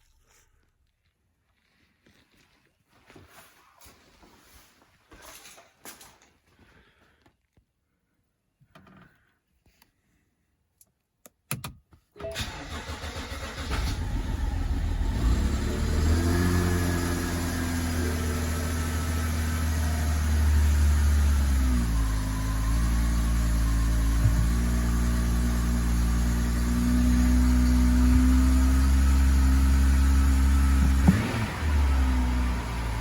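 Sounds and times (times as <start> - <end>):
car engine starting and idling: 11.5 - 33.0.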